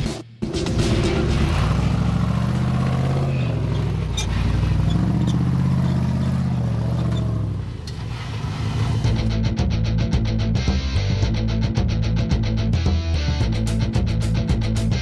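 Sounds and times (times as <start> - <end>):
engine revving under load: 0.6 - 9.4.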